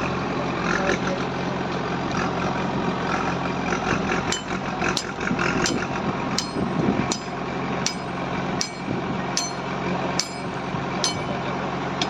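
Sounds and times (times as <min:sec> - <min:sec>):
engine idling: 0:00.0 - 0:12.0
hammer striking metal: 0:04.3 - 0:11.5.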